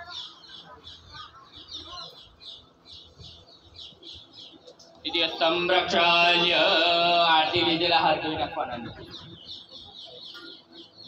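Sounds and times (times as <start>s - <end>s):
man speaking over a microphone: 5.0s - 9.2s.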